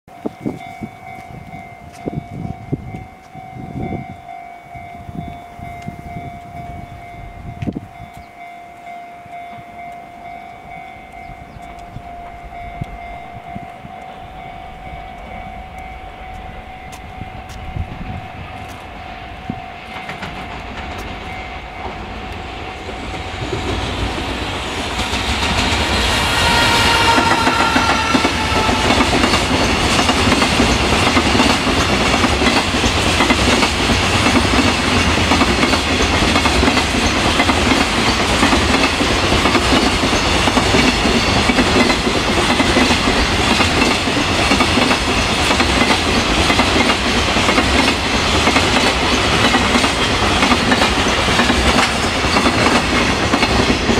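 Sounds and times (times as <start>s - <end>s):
locomotive whine: 0.1s - 53.9s
train wheels clattering over rail joints: 19.8s - 53.9s.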